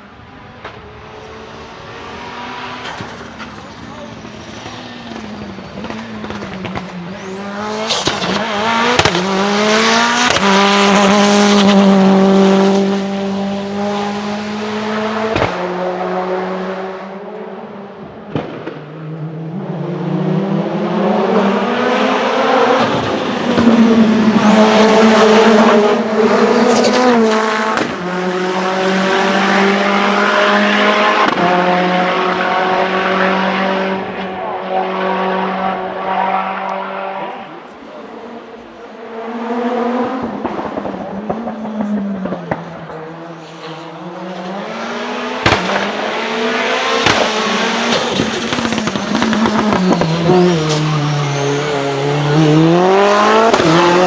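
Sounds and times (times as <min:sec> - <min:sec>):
race car engine accelerating: 0:00.3 - 0:54.0
tyre squeals: 0:24.2 - 0:28.5.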